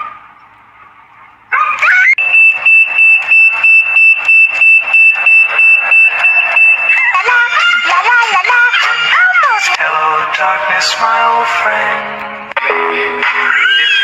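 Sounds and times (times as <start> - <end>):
pulsing electronic alarm tone: 2.2 - 7.6.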